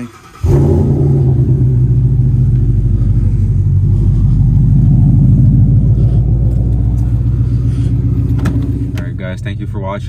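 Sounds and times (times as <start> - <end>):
car engine deep rumble: 0.0 - 10.0.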